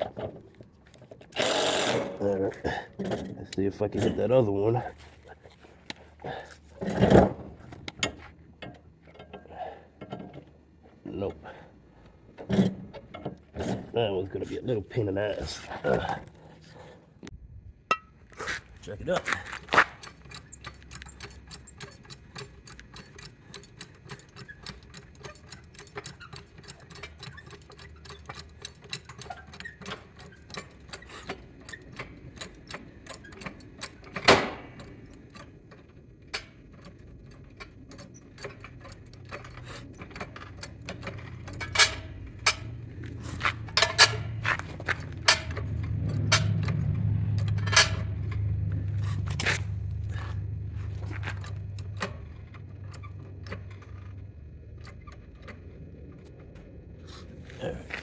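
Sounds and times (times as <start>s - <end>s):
metal tools clicking and clinking: 19.2s - 55.5s
low hum: 38.9s - 58.0s.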